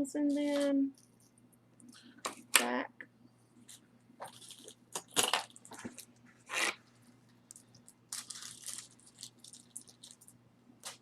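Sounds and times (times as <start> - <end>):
jewelry rustling: 7.4 - 10.4.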